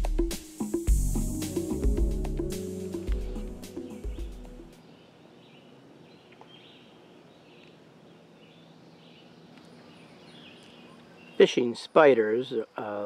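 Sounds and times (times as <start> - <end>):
background music: 0.0 - 4.8
faint outdoor ambience: 0.0 - 13.0.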